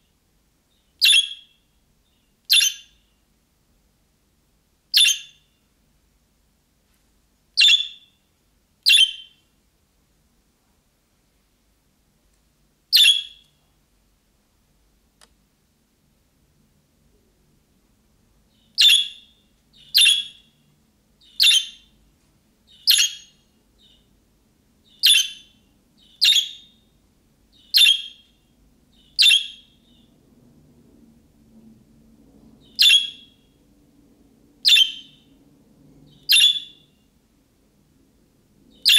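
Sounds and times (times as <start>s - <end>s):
budgerigar calling: 1.0s - 1.5s, 2.5s - 3.0s, 5.0s - 5.4s, 7.6s - 8.0s, 8.9s - 9.3s, 13.0s - 13.4s, 18.8s - 20.4s, 21.2s - 21.9s, 22.7s - 24.0s, 24.9s - 26.7s, 27.6s - 28.2s, 29.0s - 29.6s, 32.8s - 33.3s, 36.2s - 36.8s.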